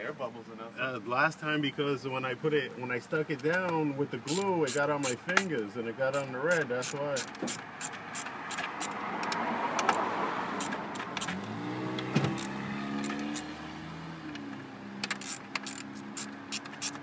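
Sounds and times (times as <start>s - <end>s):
vehicle tyre noise: 4.2s - 17.0s
vehicle engine: 6.1s - 17.0s.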